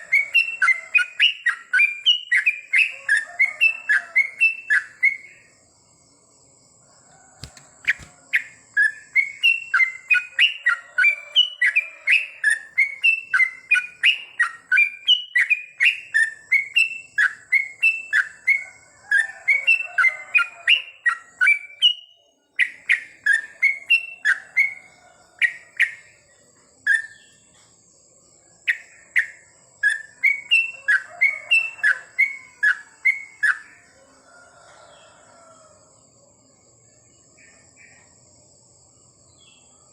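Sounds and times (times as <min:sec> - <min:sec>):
bird chirping rapidly: 0:00.0 - 0:05.4, 0:07.5 - 0:18.6.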